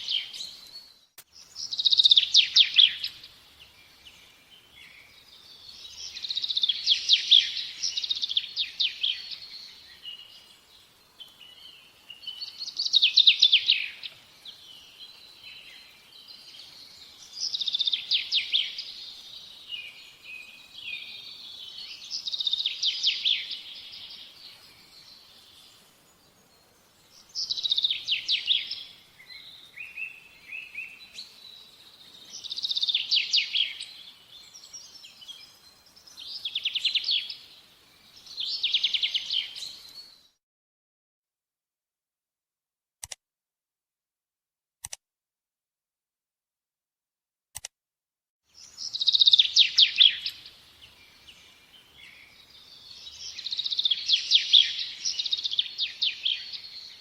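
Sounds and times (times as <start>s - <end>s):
soft bird chirps: 0.0s - 40.4s, 48.5s - 57.0s
songbird trilling: 48.8s - 50.4s.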